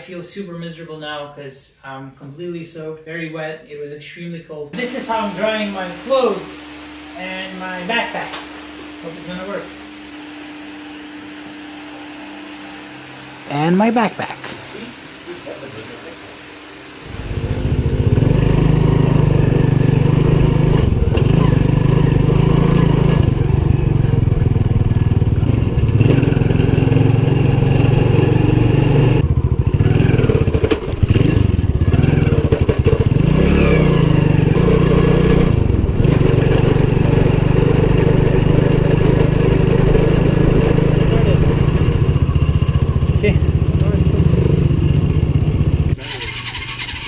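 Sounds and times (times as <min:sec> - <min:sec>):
motorbike engine running: 0:17.0 - 0:47.0.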